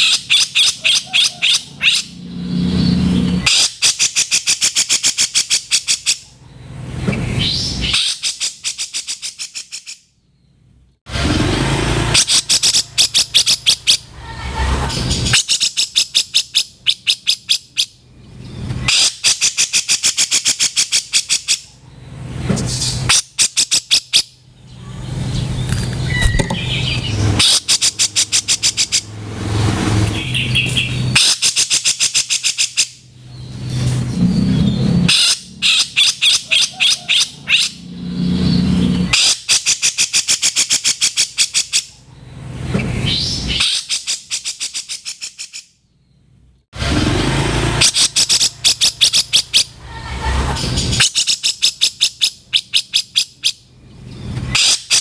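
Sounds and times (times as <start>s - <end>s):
bulbul harsh rattling call: 12.1s - 14.1s, 26.0s - 29.1s, 47.8s - 49.8s.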